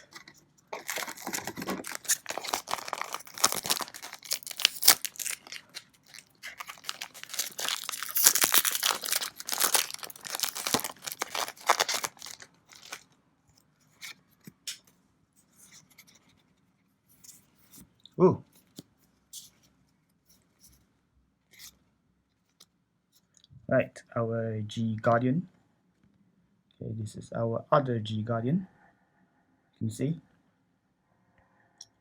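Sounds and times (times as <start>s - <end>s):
foil pack tearing and crinkling: 0.8s - 13.0s.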